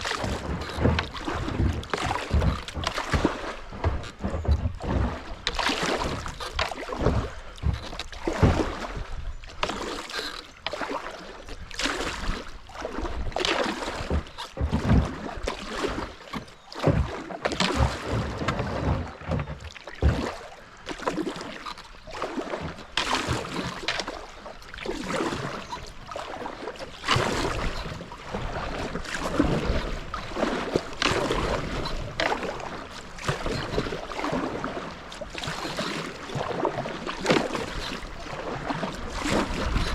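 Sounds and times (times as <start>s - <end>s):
rushing creek current: 0.0s - 11.0s
paddle splashing in water: 0.0s - 39.9s.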